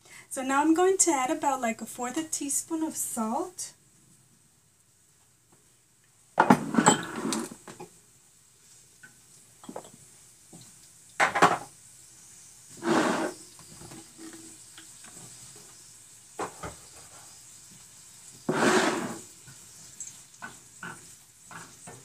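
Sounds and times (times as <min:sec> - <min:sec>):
onions frying in oil: 0:05.7 - 0:22.0
kitchen handling noises: 0:06.4 - 0:07.9, 0:11.2 - 0:11.7.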